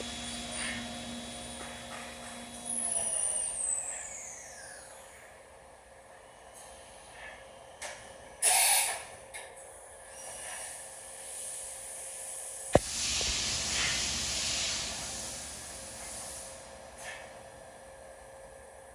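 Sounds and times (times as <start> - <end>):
machine hissing: 12.8 - 17.3.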